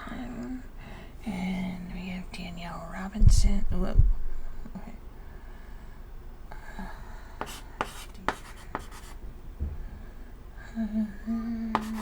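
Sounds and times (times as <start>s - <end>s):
low steady hum: 0.0s - 12.0s
low thud: 3.2s - 4.8s, 9.3s - 10.5s
chalk scratching on chalkboard: 7.4s - 9.2s, 11.7s - 12.0s.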